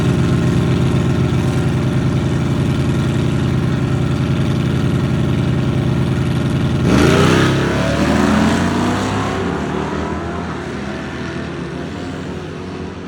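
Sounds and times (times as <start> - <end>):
drag car engine idling: 0.0 - 7.8
car accelerating hard: 6.7 - 13.0.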